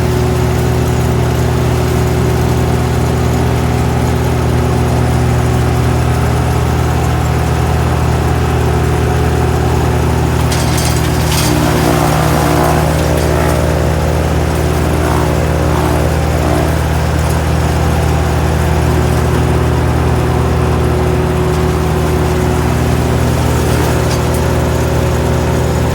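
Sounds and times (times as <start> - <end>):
wood chipper engine running: 0.0 - 25.9.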